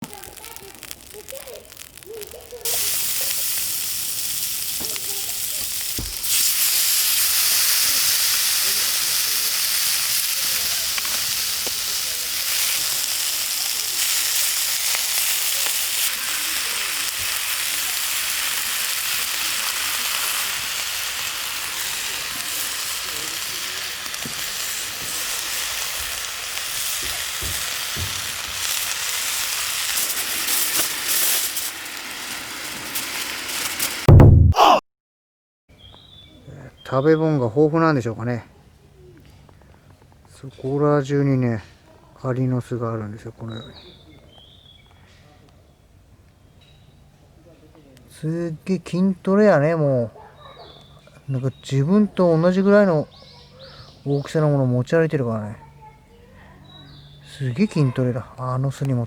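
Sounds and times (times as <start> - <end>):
steak sizzling in a pan: 0.0 - 34.1.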